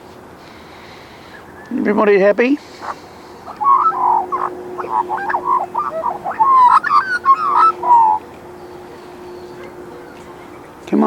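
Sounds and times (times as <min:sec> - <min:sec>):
magpie warbling: 0:02.7 - 0:09.7.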